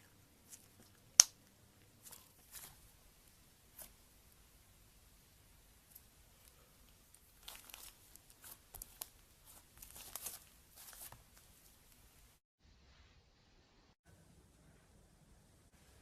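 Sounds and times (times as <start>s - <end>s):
slime crackling and popping: 0.5s - 1.4s, 7.1s - 11.5s.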